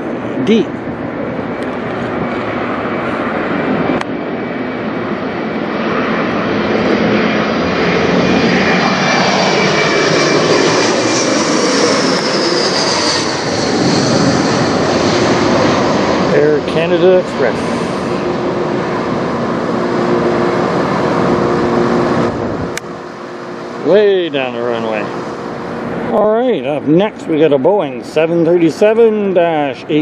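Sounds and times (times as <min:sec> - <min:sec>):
high whine sliding down: 0:00.0 - 0:30.0
jet engines flying over: 0:00.0 - 0:30.0.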